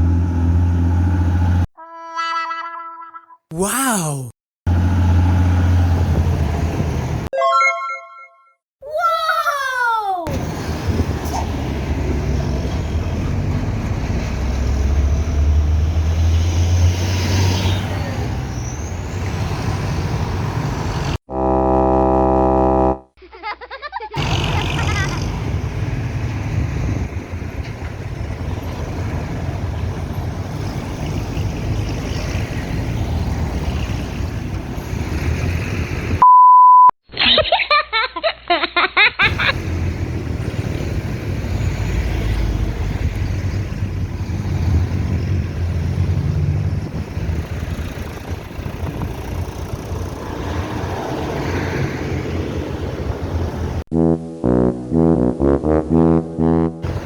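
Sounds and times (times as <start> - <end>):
heavy truck traffic rumble: 0.0 - 1.7, 4.1 - 7.3, 10.3 - 21.2, 24.2 - 36.2, 39.2 - 53.9, 56.0 - 57.0.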